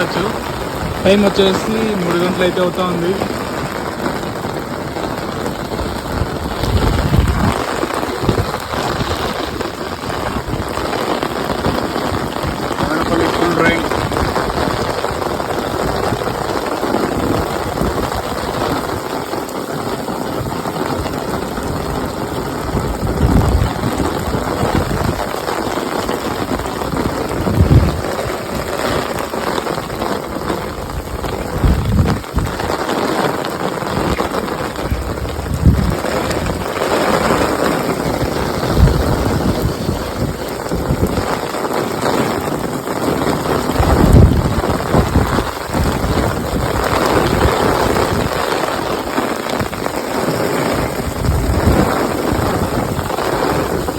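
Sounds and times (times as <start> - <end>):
heavy rain pouring: 0.0 - 53.9.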